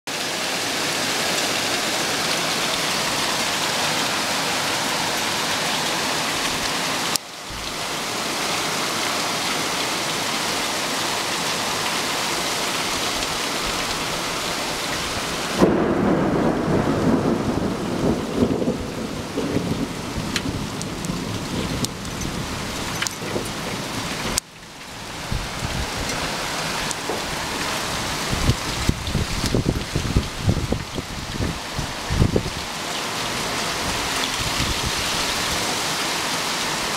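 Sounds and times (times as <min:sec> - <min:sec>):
heavy rain pouring: 0:00.1 - 0:36.9
thunder rumbling: 0:15.1 - 0:24.4, 0:26.8 - 0:32.6.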